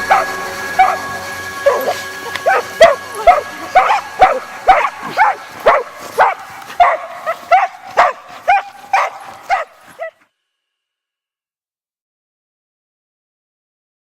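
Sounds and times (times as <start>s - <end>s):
dog barking excitedly: 0.0s - 10.2s.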